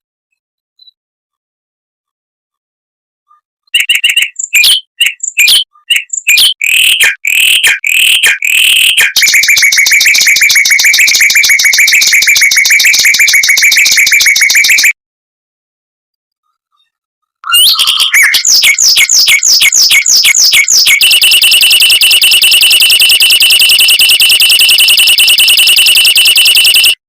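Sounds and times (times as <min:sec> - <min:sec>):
mockingbird singing: 0:03.8 - 0:14.9, 0:17.4 - 0:23.6.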